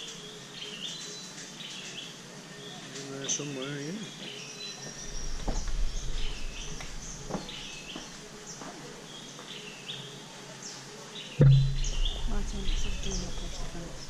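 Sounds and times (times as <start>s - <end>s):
background hiss: 0.0s - 14.0s
faint knocks: 11.4s - 14.0s
low rumble: 11.4s - 14.0s.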